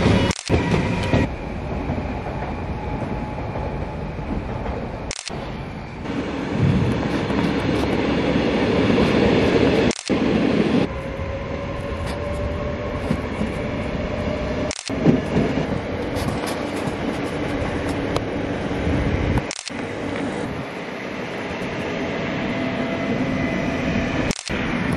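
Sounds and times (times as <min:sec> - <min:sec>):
train wheels rumbling on rails: 0:00.0 - 0:24.9.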